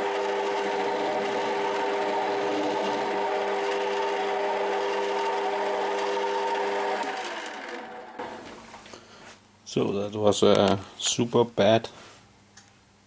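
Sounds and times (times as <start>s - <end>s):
lathe spinning down: 0.0s - 8.6s
lathe motor whining: 0.0s - 8.7s.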